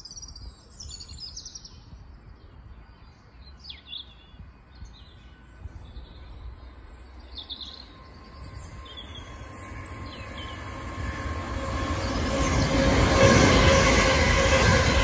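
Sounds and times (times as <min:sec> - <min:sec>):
birds chirping: 0:00.0 - 0:14.0
electric train passing: 0:04.7 - 0:15.0
train whine: 0:05.0 - 0:15.0.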